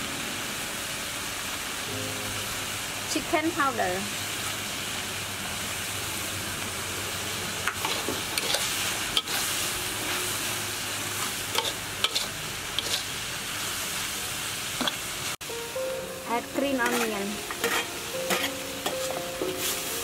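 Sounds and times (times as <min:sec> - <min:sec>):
food sizzling in a wok: 0:00.0 - 0:20.0
spatula scraping a pan: 0:07.7 - 0:09.5, 0:11.2 - 0:13.2, 0:16.8 - 0:20.0.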